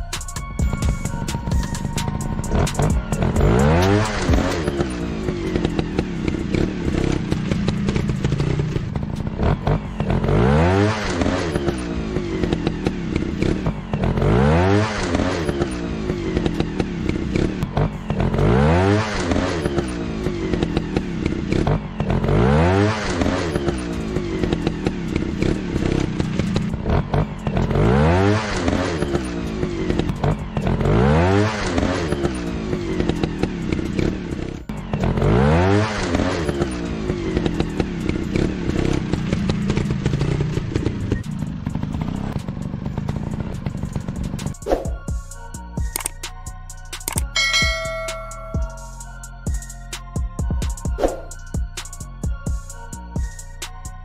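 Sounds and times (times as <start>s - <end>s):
dirt bike engines revving: 2.3s - 45.1s.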